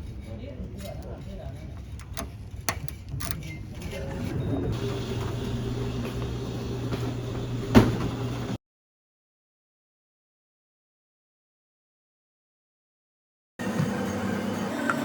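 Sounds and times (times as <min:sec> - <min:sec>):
bus engine hum: 0:00.0 - 0:08.6.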